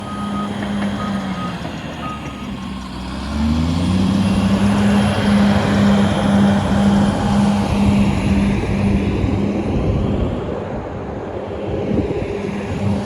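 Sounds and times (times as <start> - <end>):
reversing alarm beeping: 0.0 - 2.6
diesel earthmover engine revving: 0.0 - 10.2.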